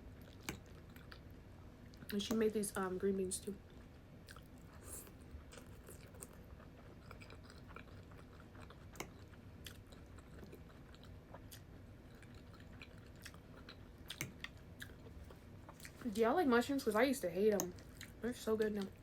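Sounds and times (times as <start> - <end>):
person chewing food: 0.1 - 1.3, 3.7 - 16.0, 17.7 - 18.2.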